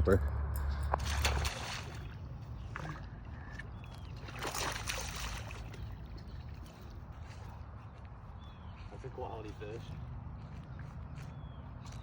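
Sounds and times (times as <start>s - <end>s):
low steady water noise: 0.9s - 8.2s
splash on water: 1.0s - 3.0s, 3.8s - 6.8s.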